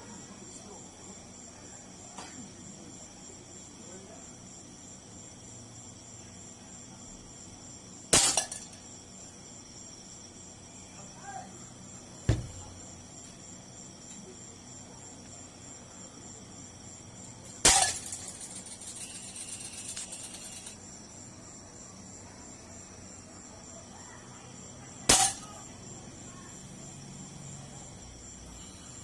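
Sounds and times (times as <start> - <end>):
crickets chirping: 0.0 - 29.0
rough hissing noise: 7.3 - 22.0
airsoft gun shots: 8.1 - 8.6, 17.6 - 18.1, 25.1 - 25.5.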